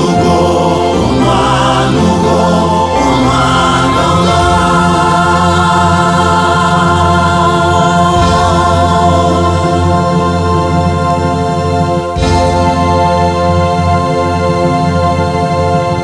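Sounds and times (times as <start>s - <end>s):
choir singing held chords: 0.0s - 16.0s
steady musical accompaniment: 0.0s - 16.0s.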